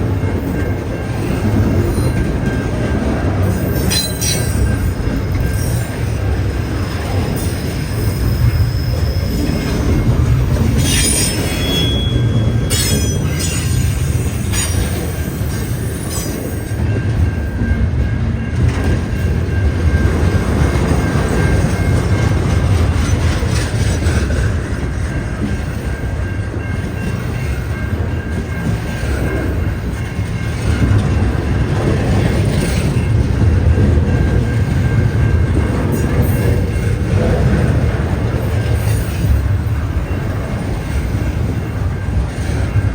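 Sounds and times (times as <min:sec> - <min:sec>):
freight train wheels rumbling: 0:00.0 - 0:42.9
high wheel squeals: 0:06.5 - 0:16.4.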